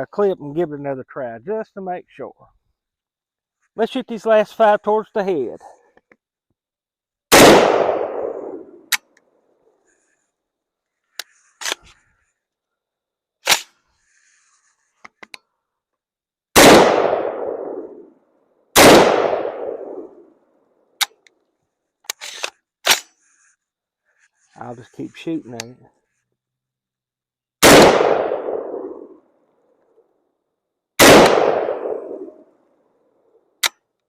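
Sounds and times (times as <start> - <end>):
rifle shots echoing: 7.3 - 8.8, 16.6 - 18.0, 18.8 - 20.2, 27.6 - 29.2, 31.0 - 32.4.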